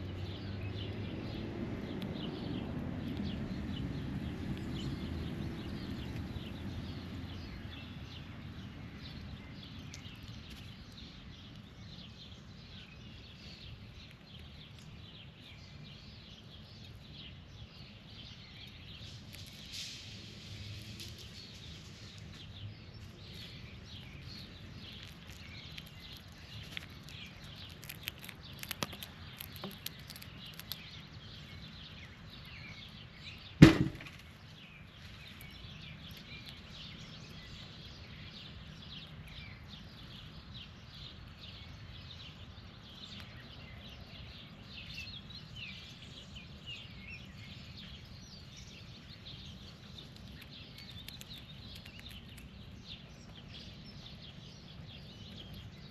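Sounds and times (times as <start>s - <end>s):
birds chirping: 0.0s - 20.0s, 21.1s - 55.9s
loud sharp knock: 33.6s - 34.2s.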